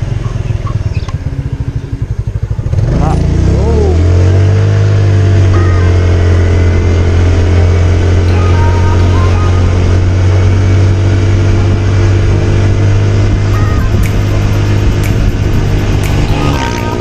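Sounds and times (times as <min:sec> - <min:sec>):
scooter engine hum: 0:00.0 - 0:17.0
background music: 0:08.2 - 0:10.7, 0:13.5 - 0:17.0.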